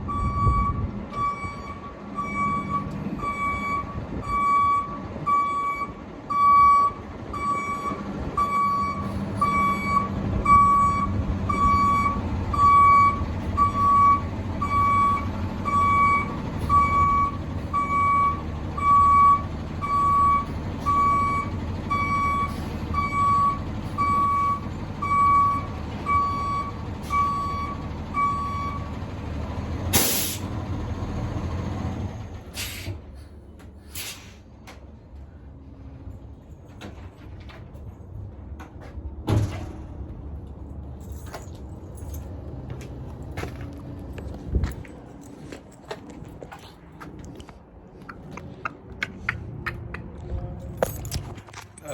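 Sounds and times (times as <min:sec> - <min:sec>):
truck backup alarm beeping: 0:00.0 - 0:32.3
diesel engine rumble: 0:00.0 - 0:51.9
air brake hiss: 0:29.9 - 0:30.6, 0:32.5 - 0:34.5.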